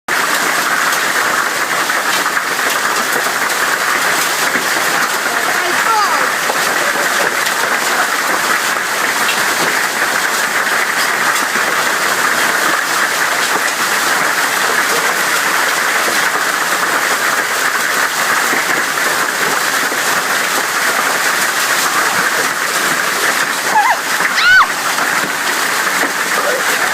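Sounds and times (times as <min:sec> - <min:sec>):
hail clattering: 0:00.1 - 0:26.9.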